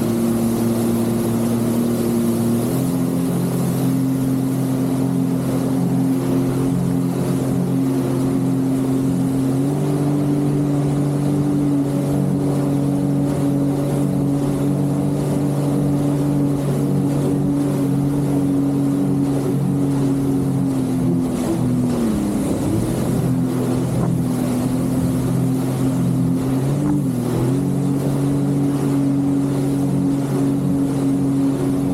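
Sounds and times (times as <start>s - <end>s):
jet ski engine running: 0.0s - 31.9s
water and wind hiss: 0.0s - 31.9s.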